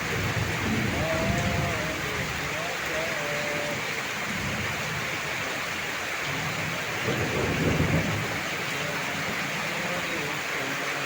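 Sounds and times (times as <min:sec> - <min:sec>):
thunder rumbling: 0:00.0 - 0:02.9, 0:06.2 - 0:10.3
heavy rain pouring: 0:00.0 - 0:11.0.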